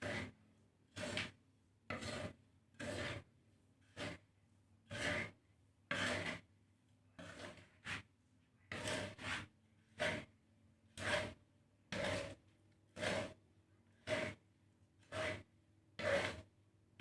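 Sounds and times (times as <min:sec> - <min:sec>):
spatula scraping grains in pan: 0:00.0 - 0:06.5, 0:07.1 - 0:17.0.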